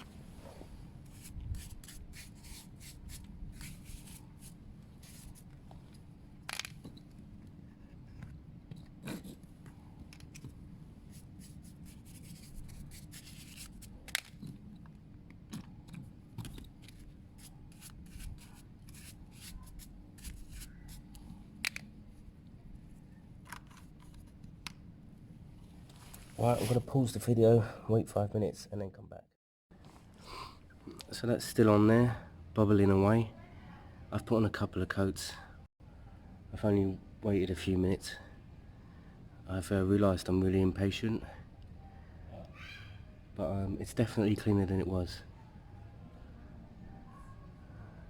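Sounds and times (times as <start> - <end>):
faint steady hum: 29.7 - 48.0.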